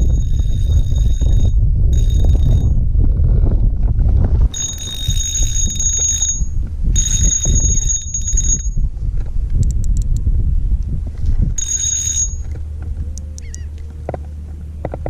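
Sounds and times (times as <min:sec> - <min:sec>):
high ringing buzzing bursts: 0:00.0 - 0:03.0, 0:04.5 - 0:09.0, 0:11.6 - 0:15.0
wind buffeting microphone: 0:00.0 - 0:15.0.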